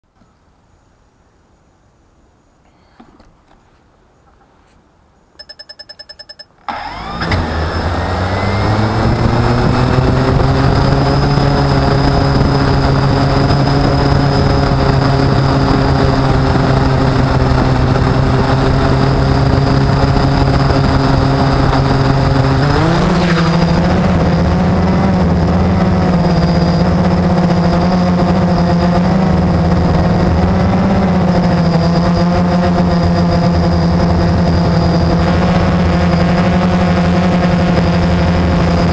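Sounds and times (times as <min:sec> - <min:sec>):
electronic beeps: 0:05.4 - 0:06.7
quadcopter motors whining: 0:06.6 - 0:38.9.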